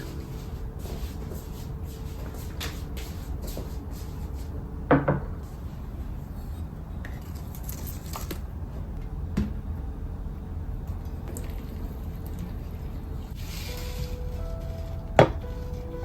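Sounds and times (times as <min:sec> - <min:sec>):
steady low hum: 0:00.0 - 0:07.3, 0:08.4 - 0:16.0.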